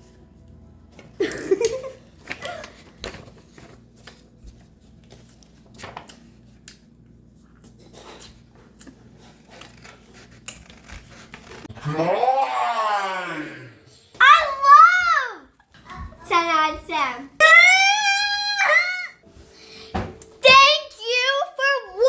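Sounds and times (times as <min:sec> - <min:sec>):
bread handling clicks and rustles: 0:00.9 - 0:11.7.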